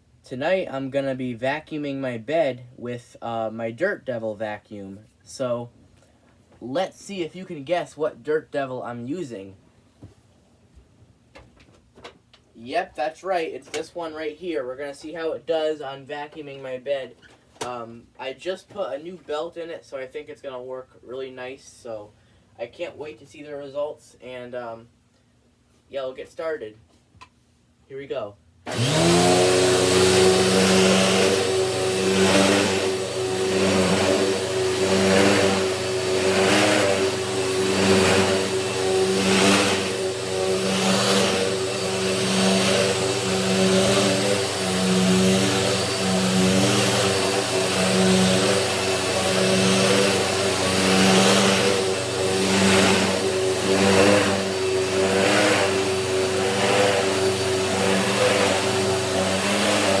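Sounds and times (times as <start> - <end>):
vacuum cleaner running: 28.7 - 60.0.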